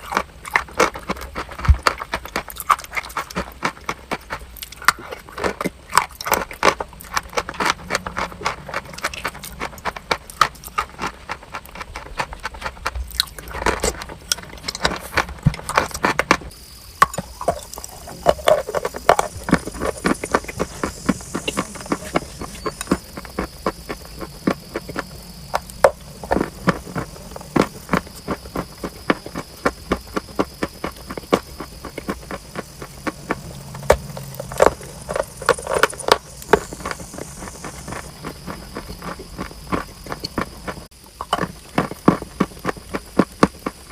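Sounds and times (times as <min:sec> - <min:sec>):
steady high hiss: 0:16.4 - 0:41.3
chalk and clay crunching: 0:17.2 - 0:43.9.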